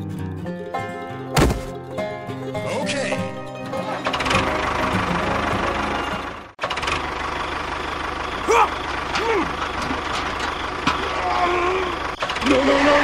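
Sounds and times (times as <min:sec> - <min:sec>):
engine running with knocking beat: 0:04.1 - 0:11.2.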